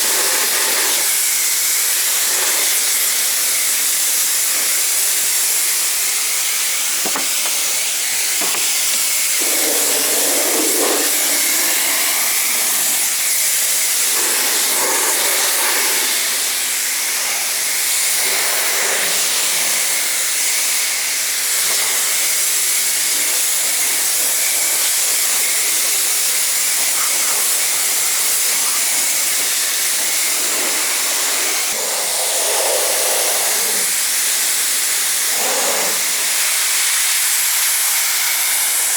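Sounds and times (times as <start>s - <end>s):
pressure washer jet hissing: 0.0s - 38.9s.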